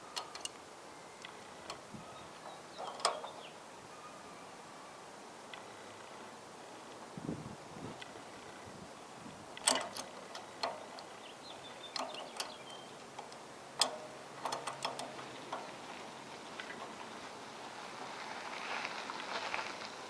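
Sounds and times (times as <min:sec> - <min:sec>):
metallic clicks and clinks: 0:00.1 - 0:00.6, 0:09.6 - 0:11.2, 0:11.8 - 0:15.8.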